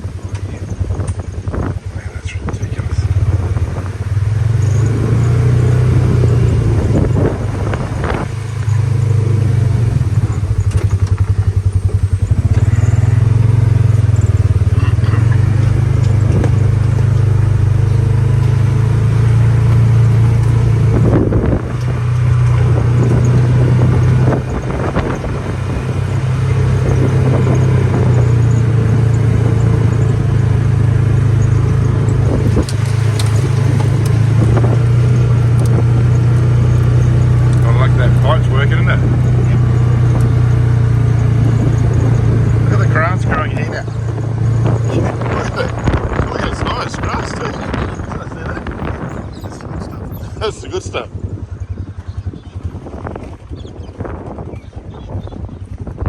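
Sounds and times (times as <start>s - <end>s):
vehicle engine humming: 0.0s - 56.0s
knocks and rattles: 30.9s - 50.4s.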